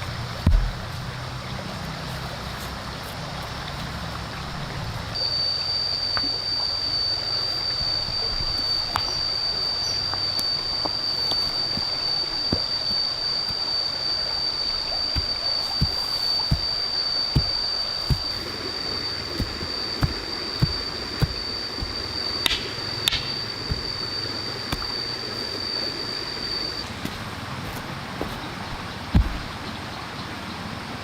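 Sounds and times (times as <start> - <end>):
insect droning: 0.0 - 31.0
stream water running: 0.0 - 31.0
dull low knocks: 0.4 - 1.1, 15.1 - 18.6, 19.4 - 25.0, 27.0 - 29.6.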